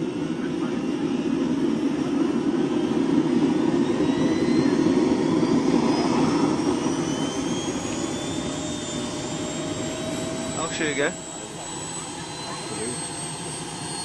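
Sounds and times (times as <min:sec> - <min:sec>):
high motor whine: 0:00.0 - 0:14.0
model helicopter rotor and motor: 0:03.9 - 0:14.0.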